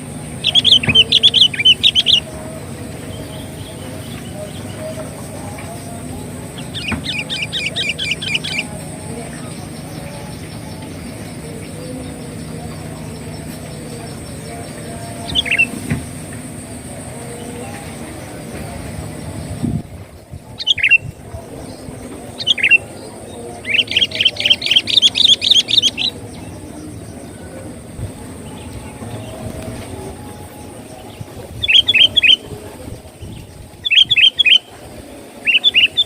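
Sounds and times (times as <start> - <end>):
fast chattering bird notes: 0.0 - 2.3, 6.5 - 8.9, 20.5 - 22.9, 31.2 - 32.6
bird calling: 0.0 - 36.0.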